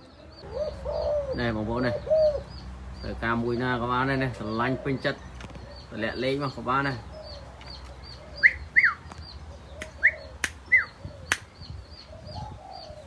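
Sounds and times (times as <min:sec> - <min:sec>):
sharp clicks: 0:09.8 - 0:10.6.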